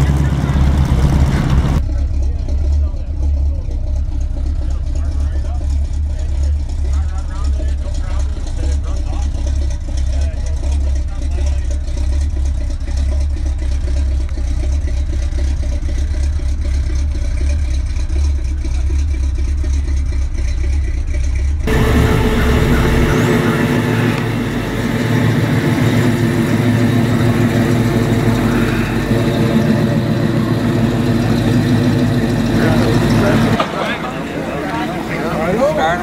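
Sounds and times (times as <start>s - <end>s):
steady low rumble: 0.0s - 12.0s, 21.4s - 35.3s
car engine passing: 21.7s - 36.0s.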